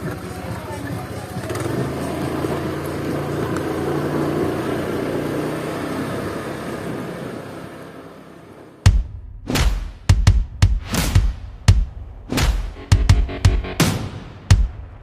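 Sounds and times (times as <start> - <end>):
vehicle engine running: 0.0 - 8.3, 12.8 - 14.0
road noise: 0.0 - 8.9.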